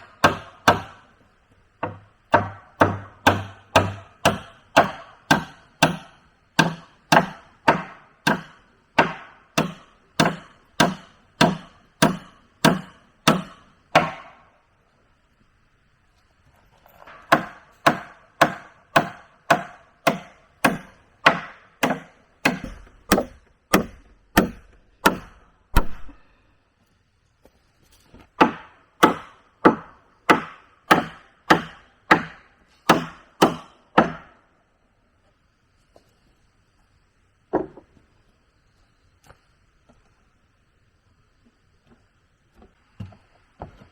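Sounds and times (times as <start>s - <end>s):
wood being chopped: 1.8s - 14.4s, 17.3s - 26.2s, 28.4s - 34.3s.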